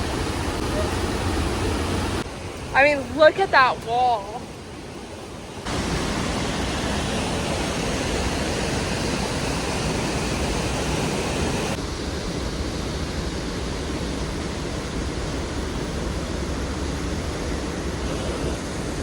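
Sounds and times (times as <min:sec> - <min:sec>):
waterfall rushing: 0:00.0 - 0:04.3, 0:05.4 - 0:11.8.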